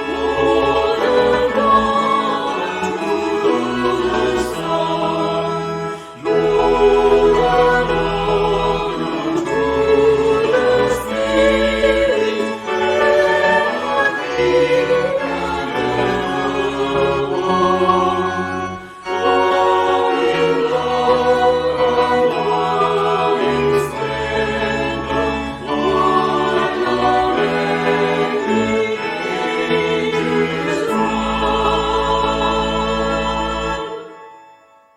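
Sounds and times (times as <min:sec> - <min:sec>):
choir singing: 0:00.0 - 0:34.7
organ chords: 0:00.0 - 0:34.9.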